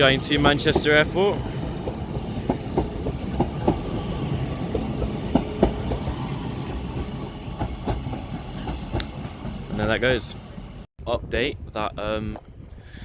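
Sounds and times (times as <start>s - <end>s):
wheels clicking over rail joints: 0.0s - 10.2s
electric train rumble: 0.0s - 10.9s.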